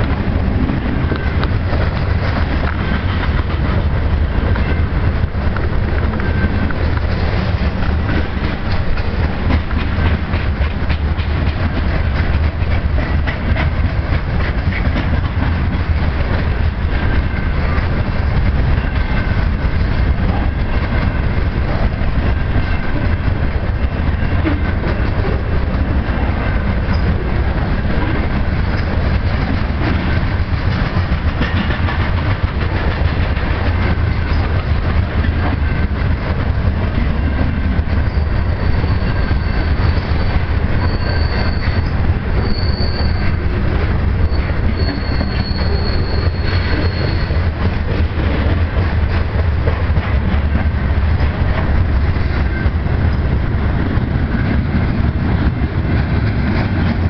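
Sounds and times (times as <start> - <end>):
freight train rolling past: 0.0 - 57.0
wheels clicking over rail joints: 0.0 - 57.0
high-pitched wheel squeal: 38.0 - 43.5, 44.2 - 47.5.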